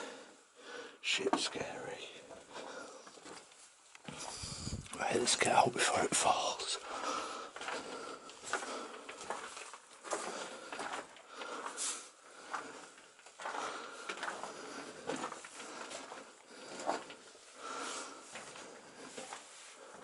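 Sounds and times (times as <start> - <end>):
footsteps crunching on dirt and rock: 6.9 - 17.1.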